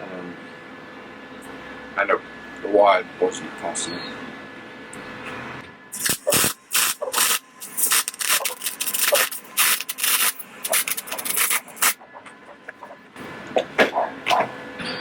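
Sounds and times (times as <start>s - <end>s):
welder arc crackling and popping: 6.0s - 12.0s.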